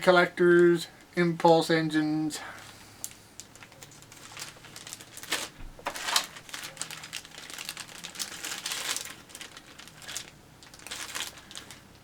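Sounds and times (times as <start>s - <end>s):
plastic packaging crinkling: 2.6s - 12.0s.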